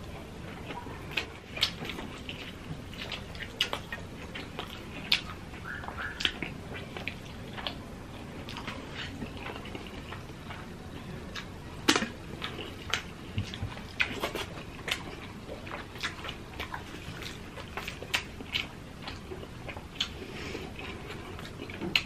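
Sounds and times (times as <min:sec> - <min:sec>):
people chewing crunchy food: 0:00.0 - 0:22.0.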